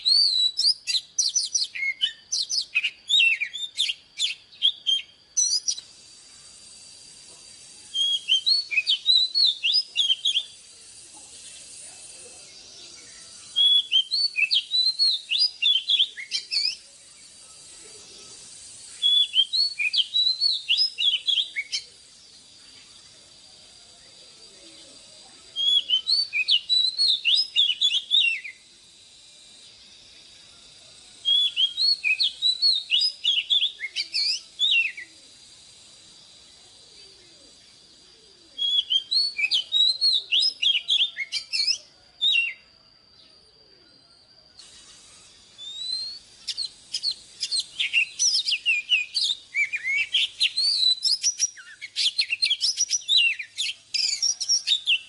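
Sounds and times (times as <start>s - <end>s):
bird singing whistled notes: 0.0s - 55.0s.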